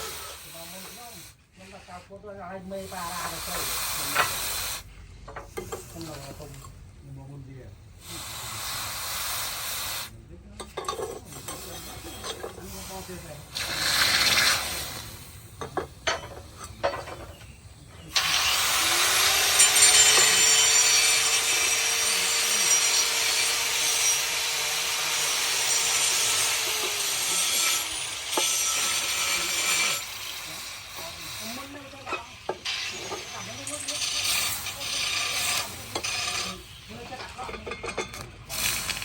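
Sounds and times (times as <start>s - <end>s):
electric grinder grinding steel: 11.8s - 15.2s, 18.1s - 37.2s.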